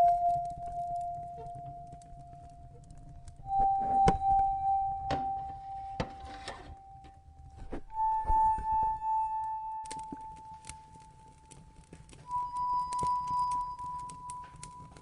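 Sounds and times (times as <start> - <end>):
soft instrumental music: 0.0 - 15.0
wood fire crackling and popping: 0.0 - 15.0.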